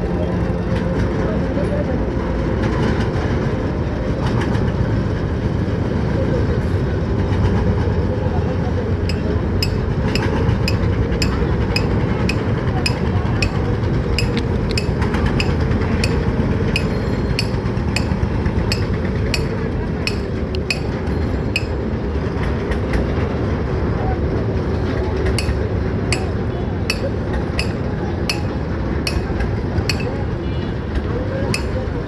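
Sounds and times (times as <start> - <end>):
indistinct voices: 8.9 - 22.1, 24.0 - 32.0.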